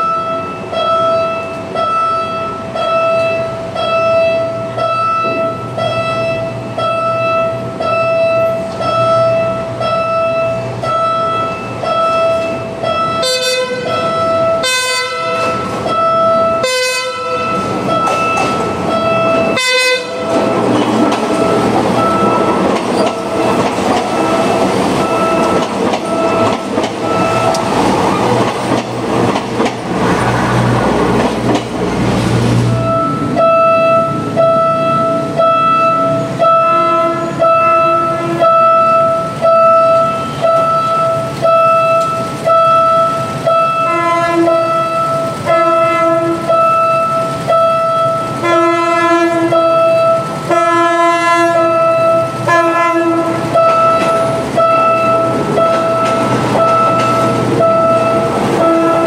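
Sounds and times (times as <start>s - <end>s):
lower warning tone: 0.0s - 28.4s, 32.6s - 59.0s
train passing with wheel clatter: 0.0s - 59.0s
pulsing warning tone: 15.4s - 28.4s, 32.7s - 45.8s, 51.6s - 59.0s.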